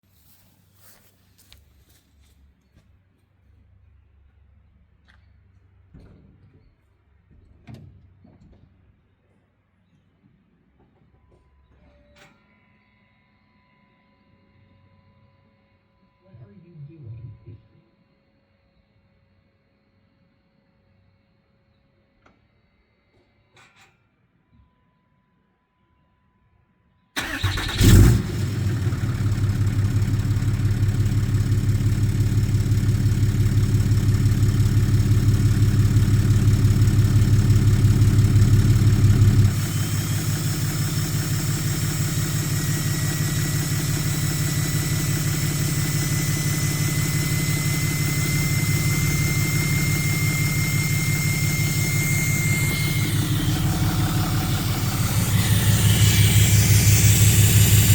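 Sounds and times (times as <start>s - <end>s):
diesel engine cranking and starting: 27.2s - 57.9s
diesel engine idling: 27.2s - 57.9s.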